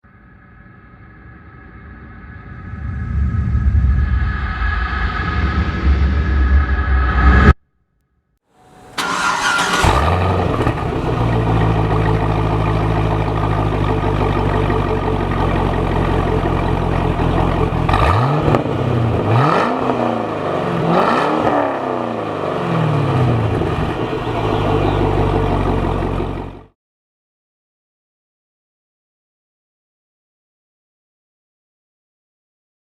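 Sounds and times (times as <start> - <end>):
car engine idling: 8.6 - 19.4, 22.2 - 26.7
car engine revving: 8.6 - 26.7
car engine starting: 8.6 - 26.7.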